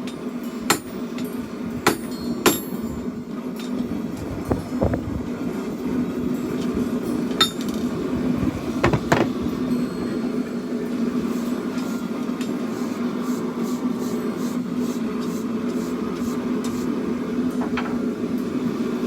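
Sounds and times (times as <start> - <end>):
hammer striking steel on anvil: 0.0 - 3.0, 7.1 - 7.8.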